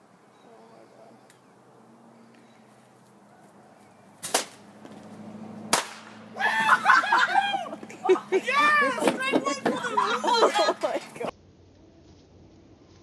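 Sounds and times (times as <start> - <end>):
bottle rocket firing: 5.7 - 6.2
sharp bang: 5.7 - 6.2
excited shouting: 6.3 - 11.3.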